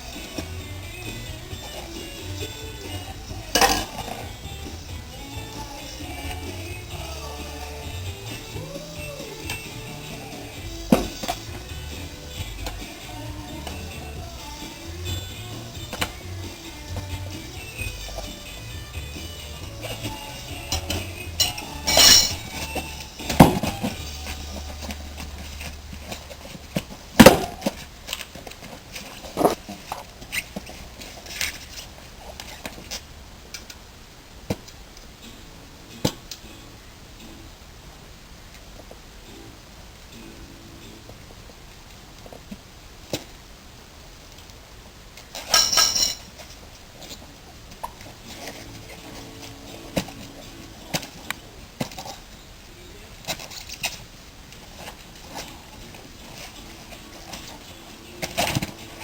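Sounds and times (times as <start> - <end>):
metal tools clinking: 20.7 - 23.7, 45.3 - 46.5.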